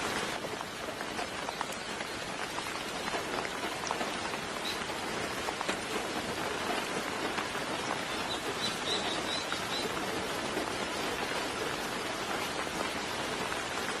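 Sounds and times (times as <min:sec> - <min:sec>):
soft rain pattering: 0:00.0 - 0:14.0
bird chirping: 0:08.1 - 0:09.9.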